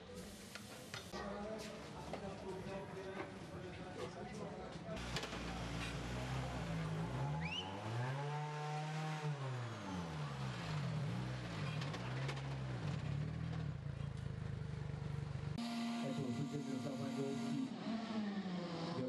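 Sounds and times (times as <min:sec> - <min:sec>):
rally car engine revving: 0:05.0 - 0:14.1, 0:15.5 - 0:19.0.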